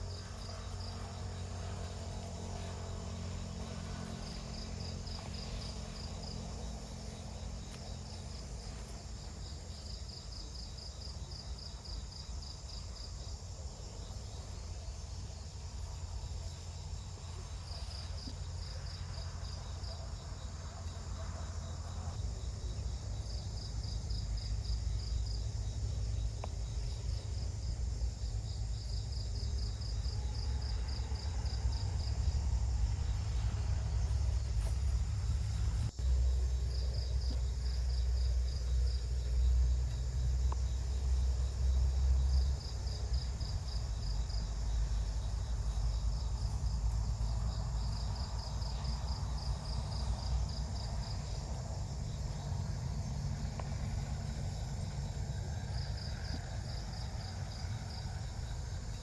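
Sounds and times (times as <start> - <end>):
insects chirping in pulsed trains: 0.0 - 59.0
steady low rumble: 22.1 - 59.0.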